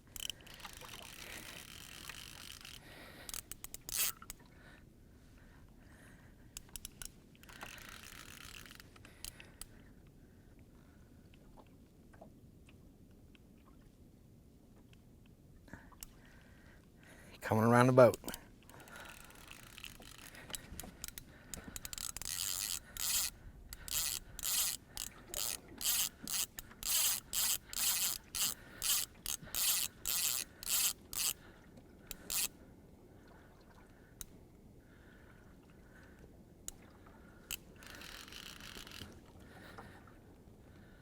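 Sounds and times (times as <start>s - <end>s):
fishing reel clicks: 0.1s - 4.4s, 6.6s - 9.8s, 18.0s - 31.4s, 32.1s - 32.6s, 37.5s - 39.2s
fishing reel scraping: 0.1s - 4.4s, 6.6s - 9.7s, 17.5s - 31.4s, 32.1s - 32.6s, 37.5s - 39.2s.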